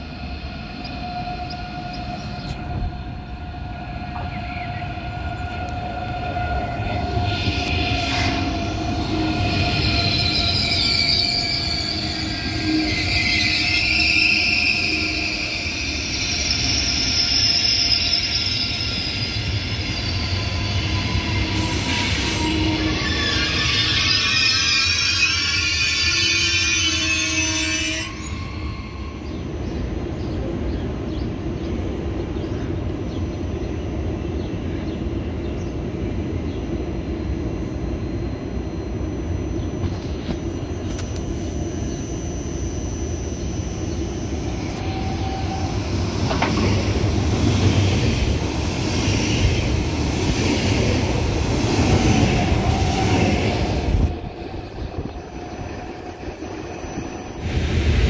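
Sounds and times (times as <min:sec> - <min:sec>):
train wheels rumbling: 0:39.7 - 0:58.0
train clank: 0:46.1 - 0:47.9.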